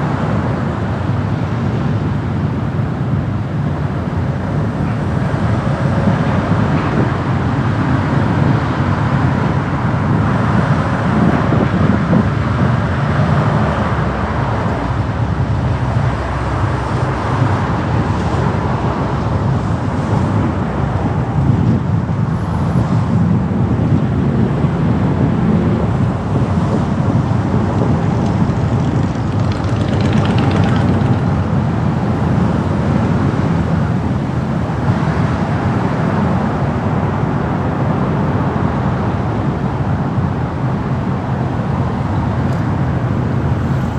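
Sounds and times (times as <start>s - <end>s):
car road and engine noise: 0.0s - 43.9s.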